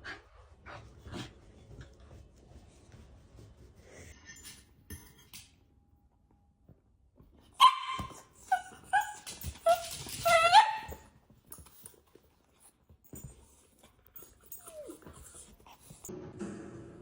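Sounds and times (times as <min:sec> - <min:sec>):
dog yipping: 0:07.6 - 0:11.1, 0:14.5 - 0:15.4.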